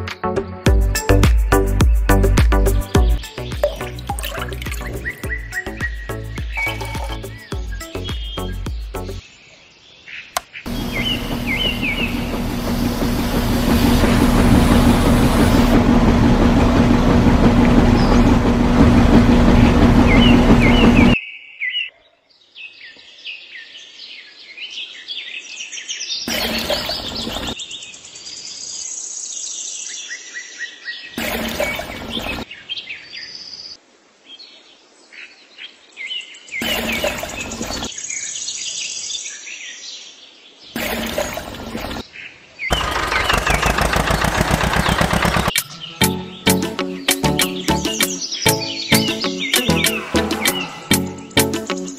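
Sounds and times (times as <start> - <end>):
birds chirping: 1.8 - 29.2, 36.2 - 51.9
loud steady noise with low hum: 10.7 - 21.2.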